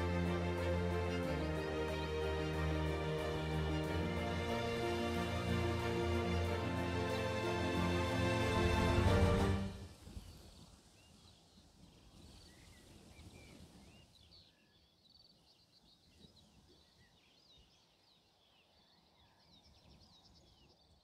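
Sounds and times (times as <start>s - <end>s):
faint birdsong chirps: 10.2s - 21.0s.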